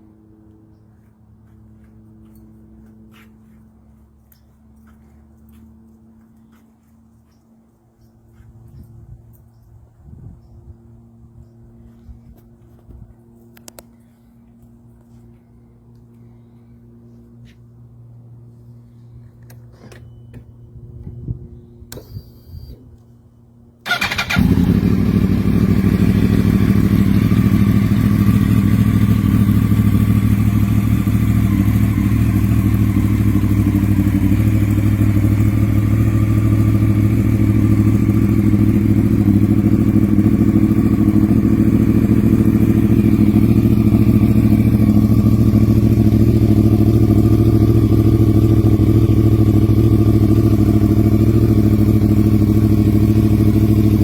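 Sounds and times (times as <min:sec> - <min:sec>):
motorcycle engine idling: 0:23.8 - 0:54.0.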